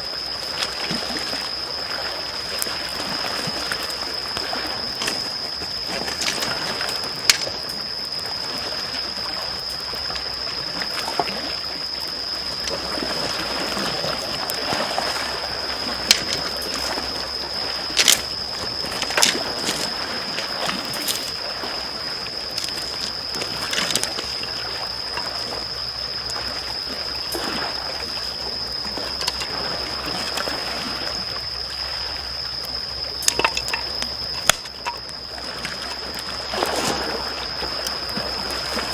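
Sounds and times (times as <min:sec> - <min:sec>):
small waves lapping on shore: 0:00.0 - 0:38.9
campfire crackling and popping: 0:04.3 - 0:07.7, 0:16.0 - 0:21.3, 0:22.4 - 0:24.5, 0:29.2 - 0:29.5, 0:33.2 - 0:35.2.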